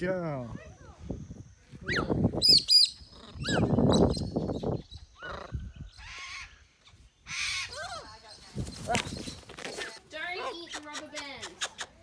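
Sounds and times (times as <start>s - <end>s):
parrots whistling and squawking: 1.9s - 6.6s, 7.3s - 8.0s
rustling: 8.4s - 10.3s.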